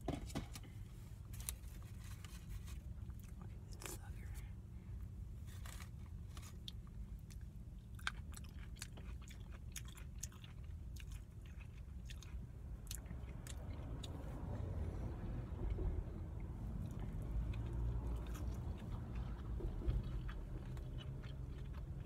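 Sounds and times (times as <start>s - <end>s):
steady low hum: 0.0s - 22.0s
chewing: 5.6s - 14.5s, 15.7s - 22.0s.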